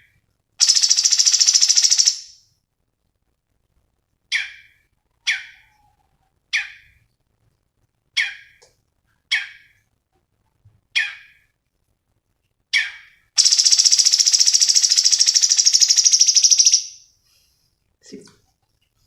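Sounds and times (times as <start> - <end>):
songbird fast high trill: 0.6 - 2.4, 13.4 - 17.0
songbird sharp calls: 0.6 - 2.4, 12.8 - 17.0.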